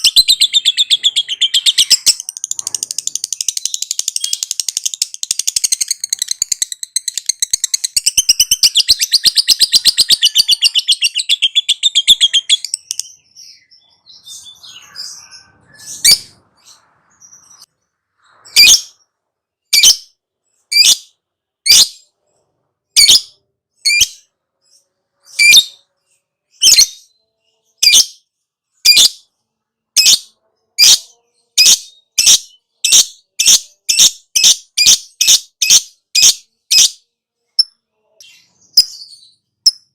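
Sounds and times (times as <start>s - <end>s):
lovebird chattering: 0.0s - 13.2s.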